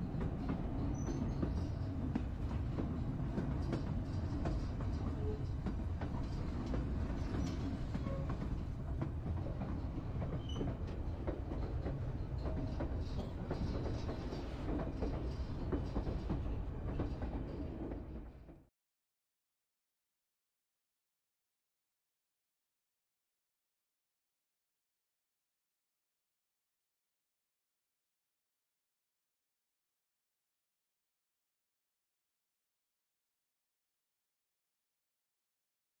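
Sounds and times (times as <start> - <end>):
train cars rumbling: 0.0 - 18.5.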